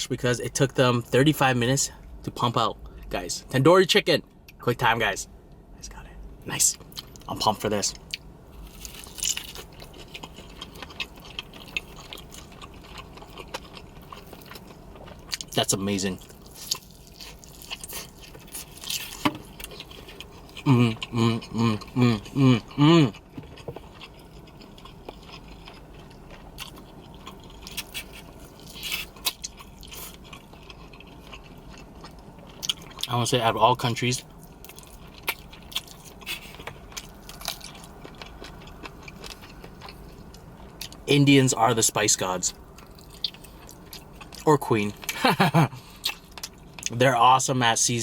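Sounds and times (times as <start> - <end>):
person biting and chewing: 8.6 - 15.6, 16.2 - 33.1, 34.6 - 41.0.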